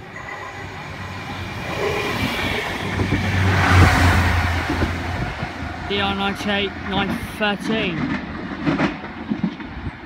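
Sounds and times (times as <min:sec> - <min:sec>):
wheels on the rail: 0:00.0 - 0:07.3.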